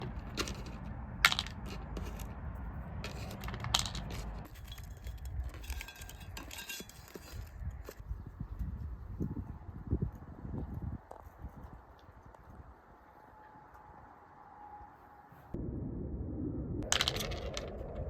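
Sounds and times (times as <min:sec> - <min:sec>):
beans clicking and rattling: 0:00.0 - 0:02.3, 0:03.0 - 0:08.0.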